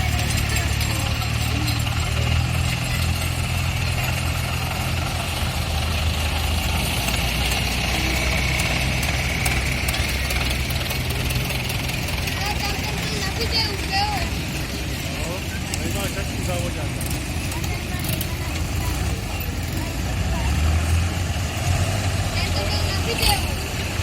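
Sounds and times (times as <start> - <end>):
tractor engine idling: 0.0 - 24.0.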